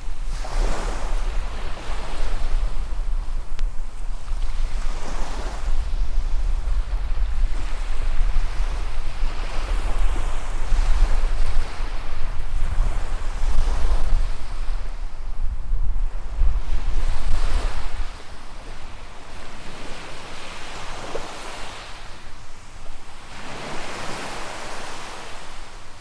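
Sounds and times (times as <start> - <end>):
wind buffeting microphone: 0.0 - 20.1
waves washing on sandy beach: 0.0 - 26.0.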